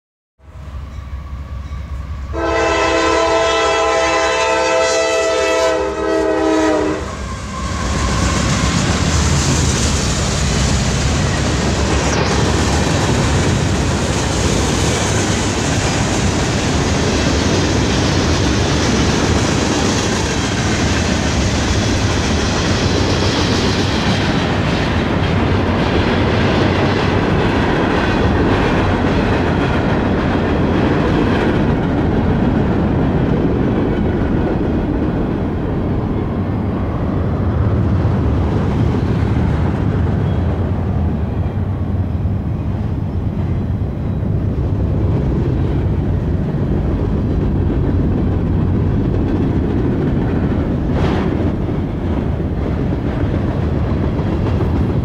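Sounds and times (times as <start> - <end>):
locomotive air horn: 0.5 - 8.6
freight cars rumbling past: 7.0 - 55.0.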